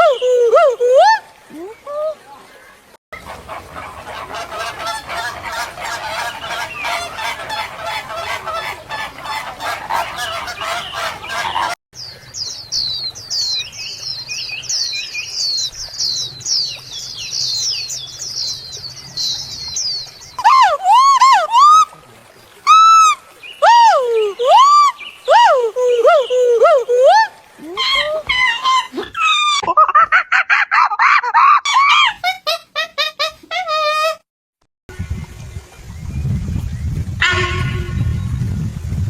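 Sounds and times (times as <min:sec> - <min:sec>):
many overlapping bird calls: 0:01.5 - 0:21.1, 0:22.1 - 0:25.3.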